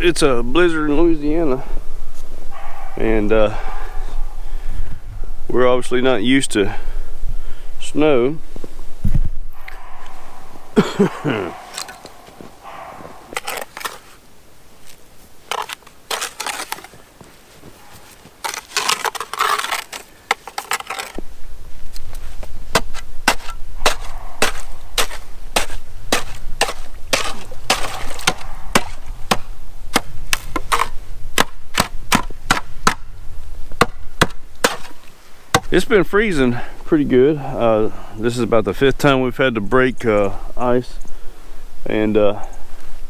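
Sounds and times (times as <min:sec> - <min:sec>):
ice being struck and broken: 0:13.4 - 0:14.0, 0:15.5 - 0:17.0, 0:18.2 - 0:21.2, 0:22.8 - 0:29.4
ice cracks and knocks: 0:15.5 - 0:17.0, 0:18.0 - 0:21.2, 0:24.5 - 0:29.0.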